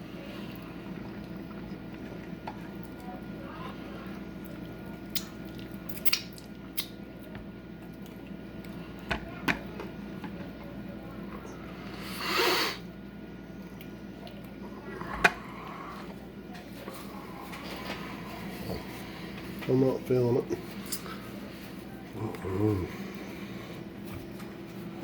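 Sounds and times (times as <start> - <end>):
mouth clicks and smacks eating: 4.4 - 7.0.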